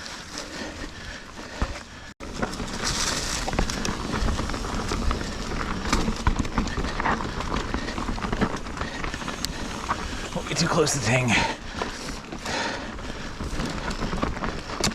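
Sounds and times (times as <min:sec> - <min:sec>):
bike tyres on rocky trail: 0:00.0 - 0:14.9
bike knocks and rattles: 0:01.4 - 0:10.3.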